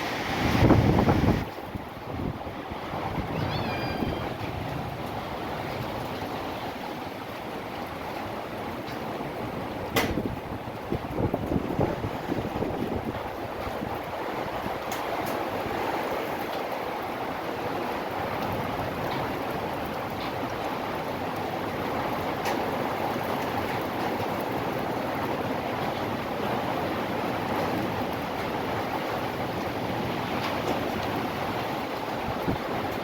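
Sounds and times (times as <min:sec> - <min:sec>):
rain in strong wind: 0:00.0 - 0:33.0.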